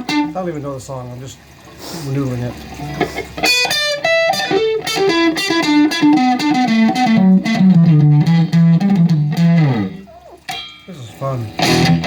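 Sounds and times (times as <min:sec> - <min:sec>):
electric guitar single-note line: 0:00.0 - 0:00.4, 0:03.4 - 0:10.8, 0:11.4 - 0:12.0.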